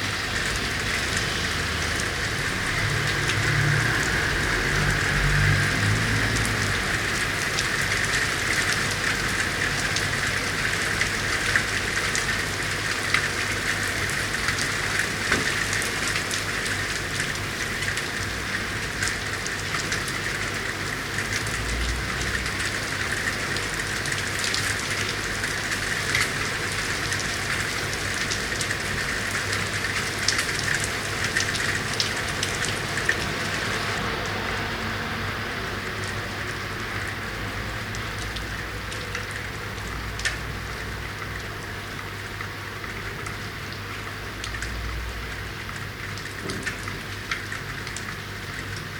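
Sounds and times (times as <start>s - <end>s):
rain on street: 0.0s - 48.9s
sharp drips and taps: 44.4s - 48.9s.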